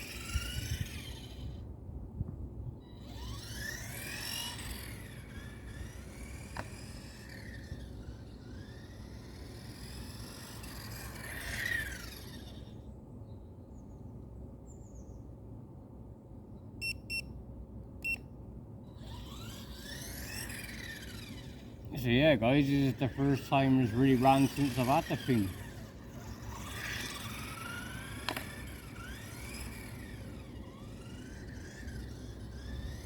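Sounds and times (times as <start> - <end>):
rc car electric motor whine: 0.0 - 1.8, 2.6 - 12.9, 18.9 - 33.0
short high beeps: 16.8 - 17.3.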